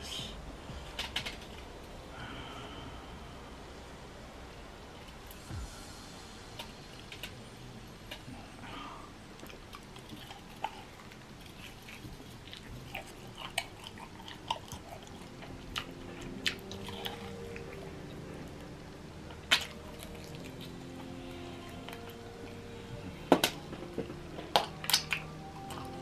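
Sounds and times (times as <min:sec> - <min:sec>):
man chewing chicken wings: 0:09.4 - 0:22.6.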